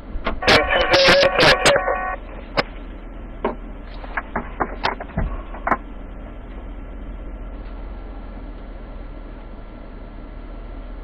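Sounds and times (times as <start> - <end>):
low hum: 0.0 - 11.0
radio clicks and pops: 0.2 - 2.8, 3.4 - 5.8
radio static hiss: 0.3 - 3.0.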